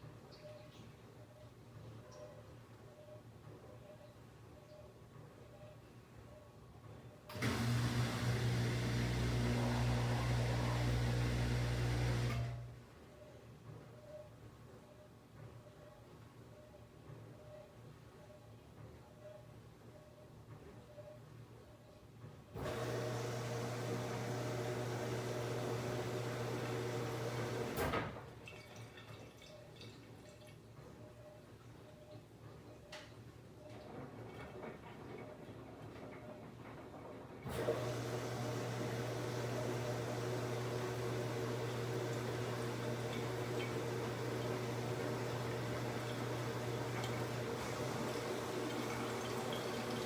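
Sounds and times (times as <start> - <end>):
washing machine motor humming: 7.3 - 12.8, 22.6 - 27.8, 37.4 - 50.0.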